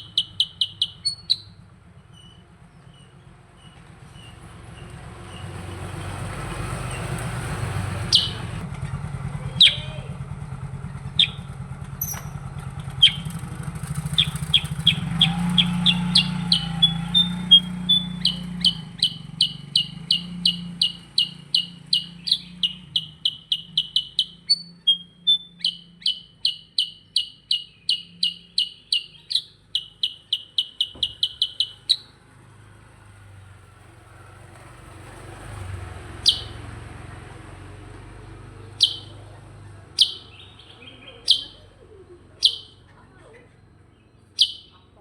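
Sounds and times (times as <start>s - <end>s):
bird falling call notes: 0.0s - 1.6s, 6.6s - 8.6s, 9.6s - 10.1s, 11.1s - 12.4s, 13.0s - 32.2s, 36.1s - 36.8s, 38.6s - 42.9s, 43.9s - 45.0s
bulbul rapid chirping song: 0.0s - 8.6s, 9.5s - 10.1s, 11.1s - 12.4s, 13.0s - 32.2s, 36.1s - 36.8s, 38.3s - 45.0s.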